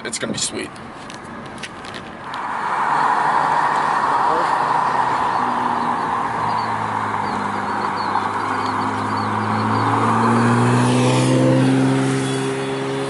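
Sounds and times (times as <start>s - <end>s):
car engine running: 3.8s - 13.0s.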